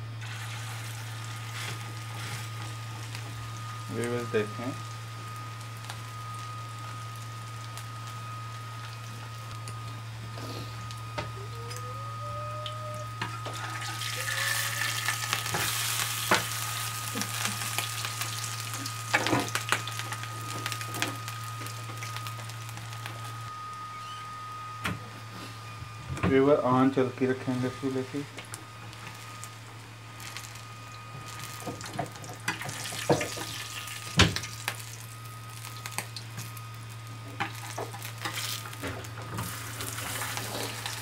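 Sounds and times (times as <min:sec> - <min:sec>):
patty sizzling in oil: 0:00.0 - 0:11.8, 0:13.0 - 0:23.9, 0:27.3 - 0:41.0.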